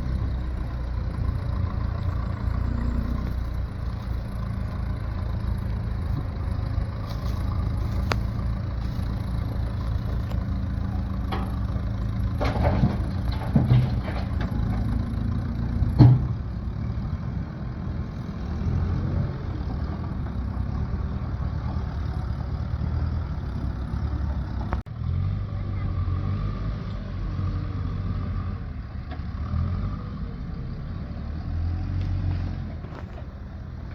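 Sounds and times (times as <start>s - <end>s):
engine idling: 0.0s - 24.9s.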